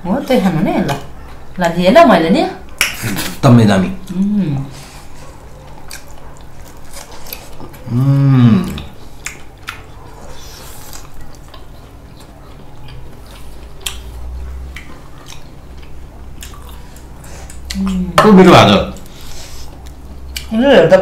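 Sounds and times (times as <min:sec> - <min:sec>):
chewing: 0:04.8 - 0:18.2, 0:19.0 - 0:20.5
person humming: 0:07.9 - 0:08.9.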